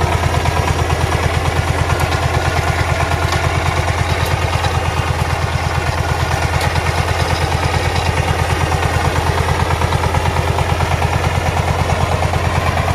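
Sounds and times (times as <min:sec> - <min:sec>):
diesel tiller engine running: 0:00.0 - 0:12.9.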